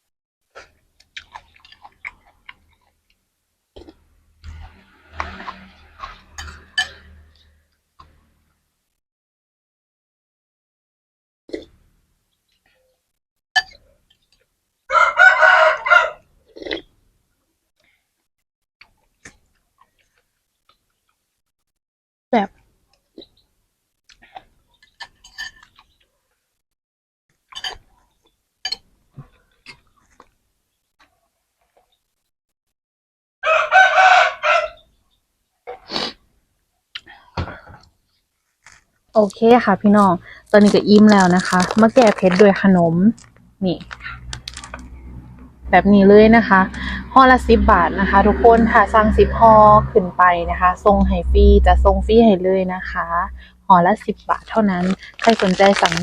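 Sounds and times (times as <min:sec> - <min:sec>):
person chewing noodle soup: 0:00.5 - 0:07.4, 0:24.1 - 0:26.1, 0:29.2 - 0:30.4, 0:43.2 - 0:45.3
chewing and mouth smacks: 0:00.6 - 0:03.2.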